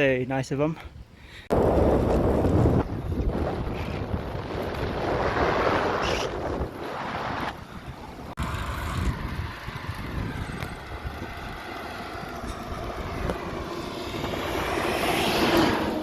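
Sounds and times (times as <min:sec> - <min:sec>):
wind rushing over microphone: 0:01.4 - 0:16.0
vehicle passing by: 0:06.9 - 0:16.0.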